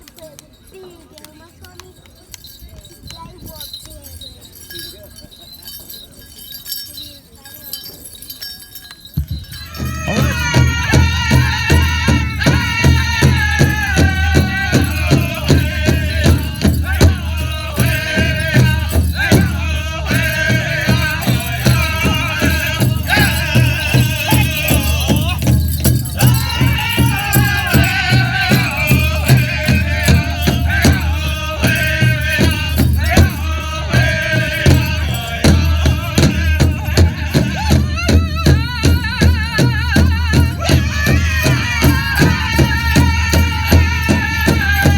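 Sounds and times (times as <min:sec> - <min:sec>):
drum group singing in high voices: 0:09.2 - 0:44.9
steady beat on large drum: 0:09.2 - 0:44.9.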